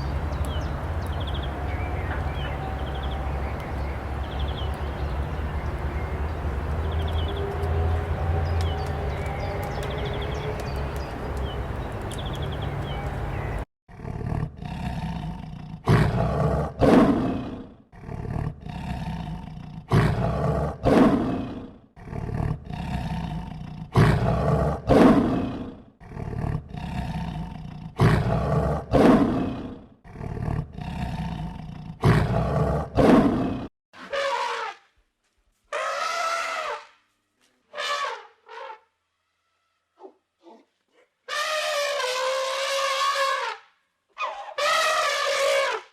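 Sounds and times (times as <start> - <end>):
lion roaring: 13.9 - 33.7.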